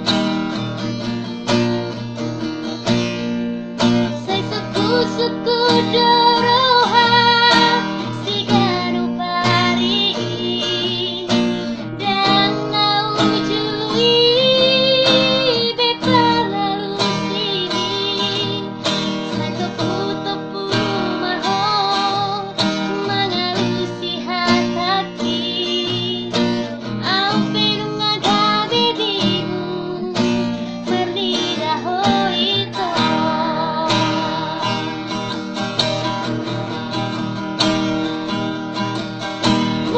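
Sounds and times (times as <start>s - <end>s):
acoustic guitar: 0.0s - 39.9s
woman singing with vibrato: 4.0s - 35.3s.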